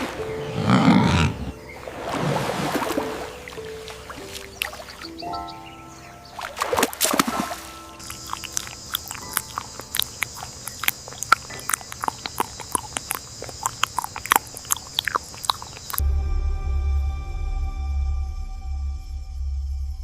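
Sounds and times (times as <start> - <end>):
insect chorus trilling: 7.2 - 16.0
sharp clicks and short chirps: 8.0 - 16.0
low music drone: 16.0 - 20.0.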